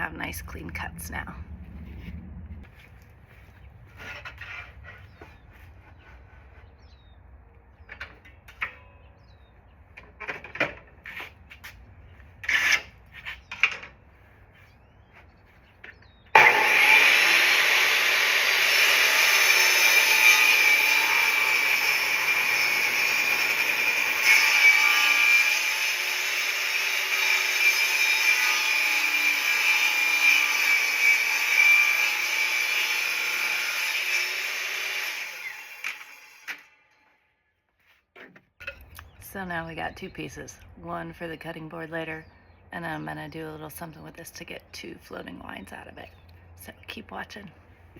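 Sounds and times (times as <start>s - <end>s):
table saw cutting board: 16.4s - 36.8s.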